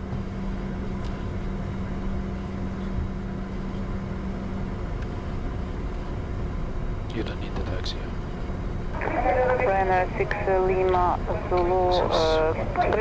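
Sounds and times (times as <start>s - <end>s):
faint steady hums: 0.0s - 13.0s
jet engines rumbling: 0.0s - 13.0s.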